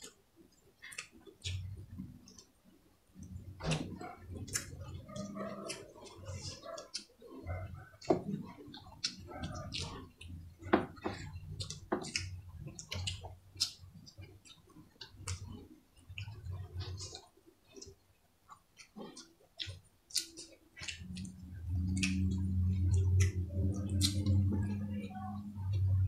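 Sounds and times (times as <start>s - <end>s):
low steady hum: 0.0s - 26.0s
wet chewing: 0.0s - 26.0s
lip smacking: 3.2s - 26.0s
sharp mouth clicks: 18.8s - 24.9s.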